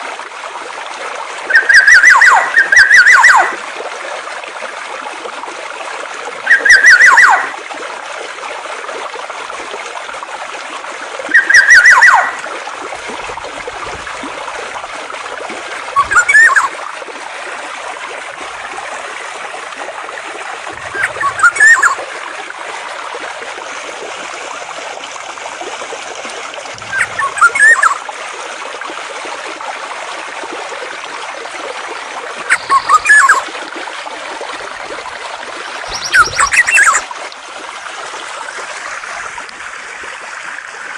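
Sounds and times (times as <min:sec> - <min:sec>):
flowing water: 0:00.0 - 0:40.9
songbird call: 0:01.5 - 0:03.6, 0:06.4 - 0:07.5, 0:11.3 - 0:12.5, 0:15.7 - 0:16.7, 0:20.8 - 0:22.0, 0:26.8 - 0:28.0, 0:32.5 - 0:33.4, 0:35.7 - 0:37.0.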